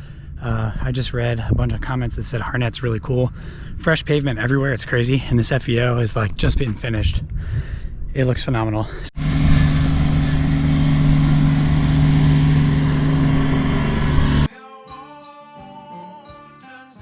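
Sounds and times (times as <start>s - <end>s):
engine running steadily: 9.2s - 14.5s
rushing noise: 9.2s - 14.5s
quiet acoustic guitar music: 13.5s - 17.0s.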